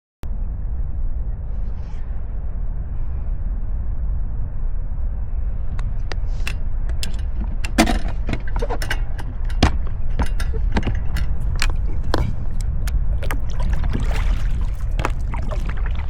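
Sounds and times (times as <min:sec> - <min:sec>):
wind rumbling on microphone: 0:00.2 - 0:16.0
water dripping off paddle: 0:11.2 - 0:16.0.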